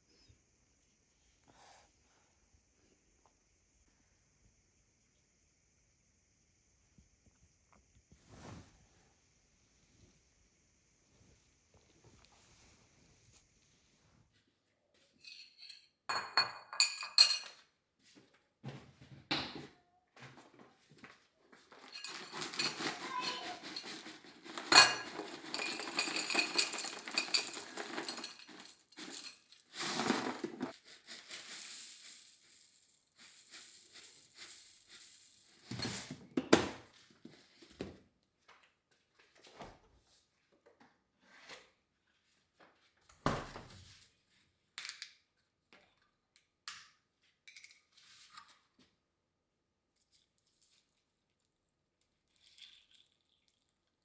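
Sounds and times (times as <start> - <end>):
dishes and utensils clinking: 15.2 - 17.6, 21.7 - 30.7.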